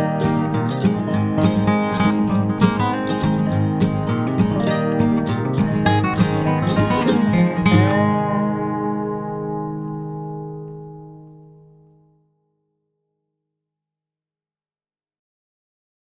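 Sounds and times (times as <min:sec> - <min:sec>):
acoustic guitar music: 0:00.0 - 0:12.4.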